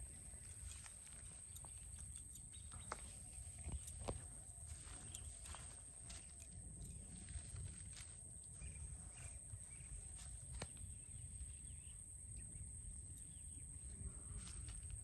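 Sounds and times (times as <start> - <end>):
bird chirps: 0.0 - 4.2.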